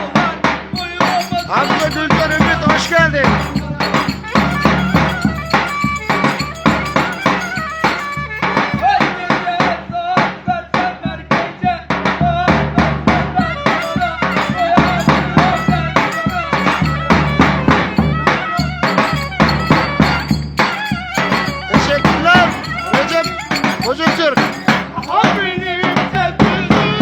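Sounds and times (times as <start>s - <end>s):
wavering melody line: 0.8s - 9.0s, 13.4s - 26.2s
fast percussion beat: 0.8s - 9.6s, 12.8s - 27.0s.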